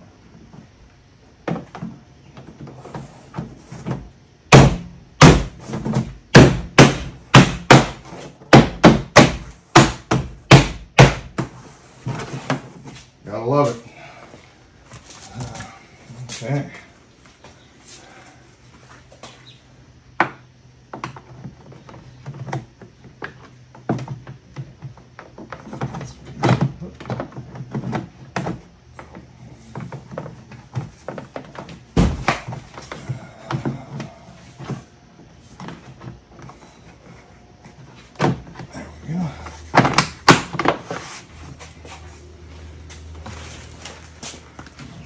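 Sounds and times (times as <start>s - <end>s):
panel thump: 32.0s - 32.6s.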